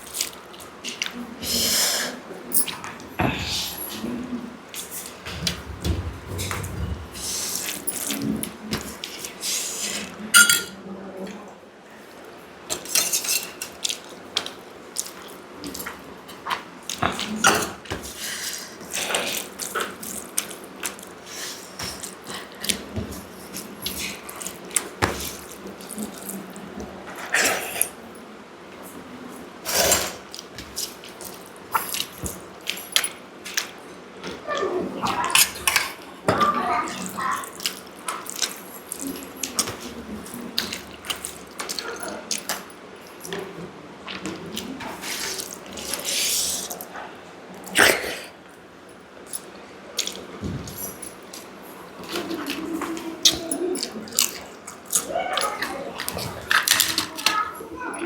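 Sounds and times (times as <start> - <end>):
wet chewing and smacking: 13.7 - 17.3, 37.0 - 42.7, 50.0 - 50.3, 51.2 - 57.3.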